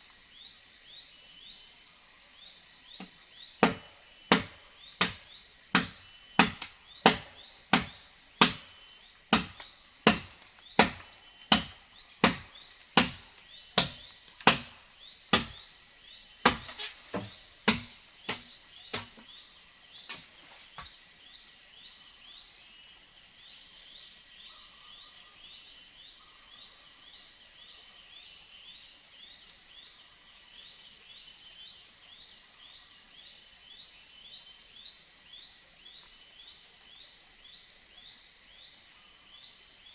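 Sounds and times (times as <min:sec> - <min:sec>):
insects chirping: 0:00.0 - 0:39.9
chopping blows on wood: 0:03.0 - 0:15.7, 0:16.4 - 0:19.3.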